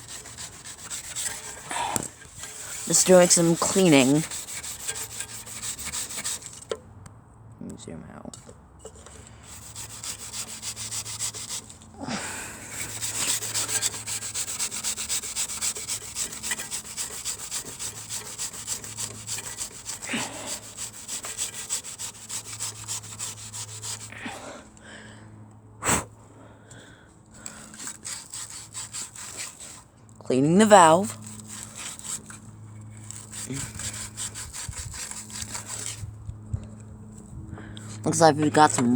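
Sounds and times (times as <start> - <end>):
scrubbing strokes: 0.0 - 6.7, 9.4 - 24.2, 27.5 - 29.9, 30.6 - 36.1.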